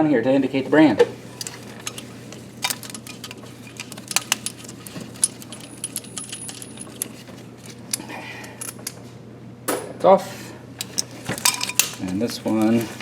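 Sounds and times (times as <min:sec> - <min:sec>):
metal strap hardware clinking: 0:01.4 - 0:09.0, 0:10.8 - 0:13.0.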